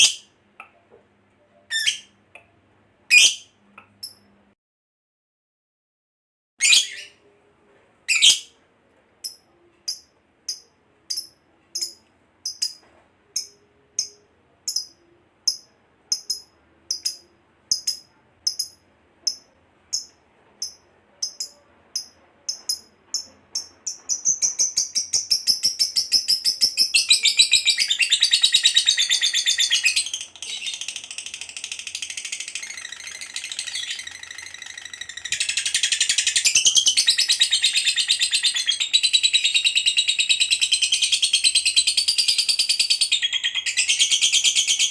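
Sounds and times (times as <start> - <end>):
lovebird chirping and trilling: 0.0 - 0.3, 1.7 - 2.2, 3.1 - 4.3, 6.6 - 7.2, 8.1 - 8.5, 9.2 - 12.8, 13.4 - 44.9.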